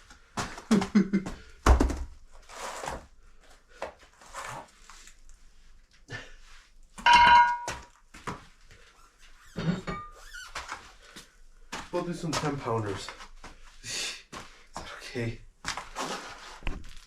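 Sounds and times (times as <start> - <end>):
metal clank ringing: 7.0 - 7.8.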